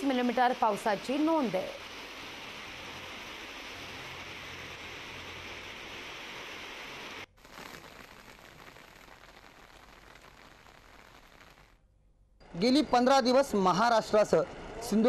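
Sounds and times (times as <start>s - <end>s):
heavy rain hissing: 0.0s - 11.7s
rain patter: 0.0s - 11.8s.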